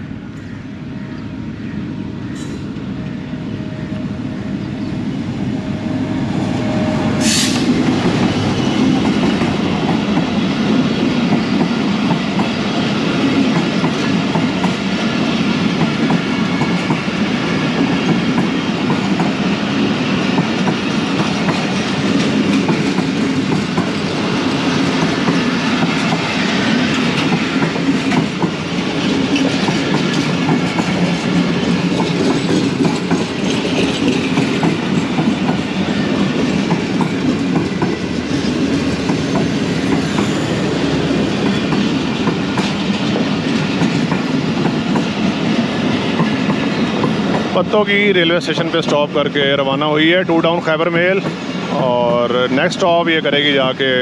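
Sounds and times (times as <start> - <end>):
train wheels clattering over rail joints: 20.2 - 47.8.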